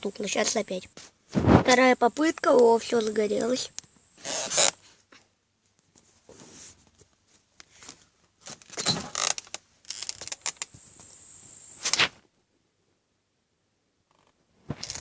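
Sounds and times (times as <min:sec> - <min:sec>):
campfire crackling: 0:09.1 - 0:12.2.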